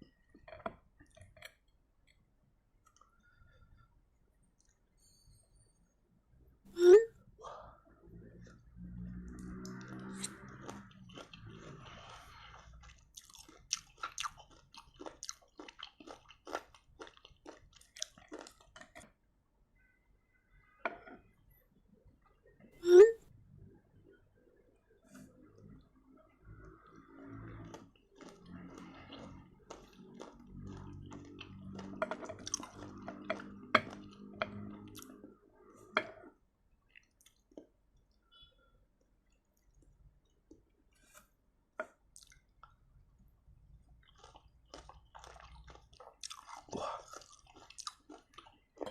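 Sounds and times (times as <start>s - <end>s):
low hum: 7.9s - 12.3s
person chewing crunchy food: 9.3s - 19.1s, 27.2s - 35.2s, 44.0s - 48.9s.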